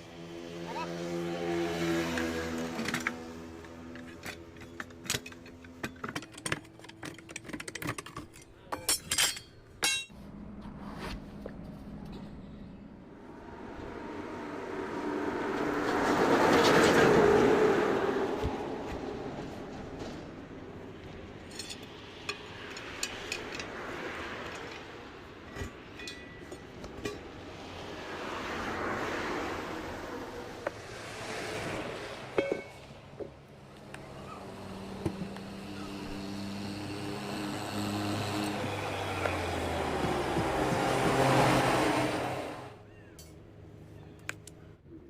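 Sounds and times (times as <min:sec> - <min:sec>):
metal tools clinking: 0:03.9 - 0:10.1, 0:21.4 - 0:23.8, 0:24.4 - 0:27.2
low engine hum: 0:10.1 - 0:21.4, 0:27.5 - 0:45.0.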